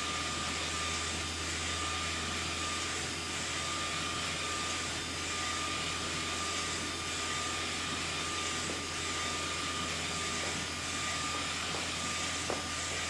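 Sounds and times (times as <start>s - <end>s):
inkjet printer running: 0.0s - 13.0s.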